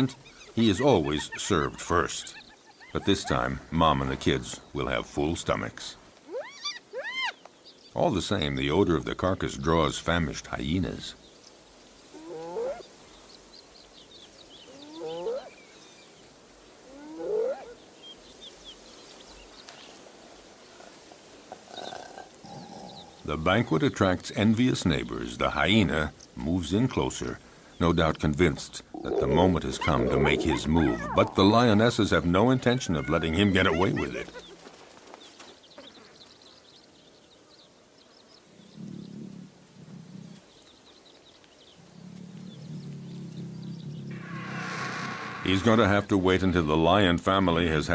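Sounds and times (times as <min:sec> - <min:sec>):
quiet savanna background: 0:00.0 - 0:47.9
small birds chirping: 0:00.0 - 0:47.9
animal call gliding in pitch: 0:29.0 - 0:31.4, 0:44.1 - 0:45.7.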